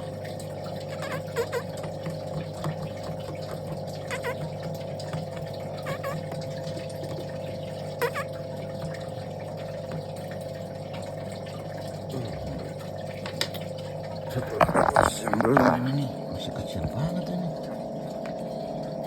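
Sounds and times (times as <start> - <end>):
small motor humming: 0.0 - 10.3.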